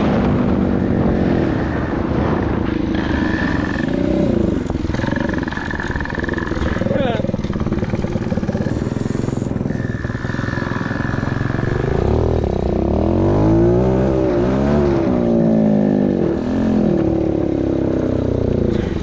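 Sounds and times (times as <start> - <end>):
engines running: 0.0 - 19.0
pit bike engine revving: 1.1 - 19.0.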